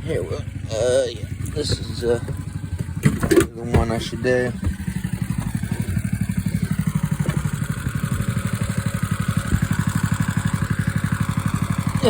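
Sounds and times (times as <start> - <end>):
engine idling: 0.0 - 12.0
faint knocks: 1.4 - 10.9.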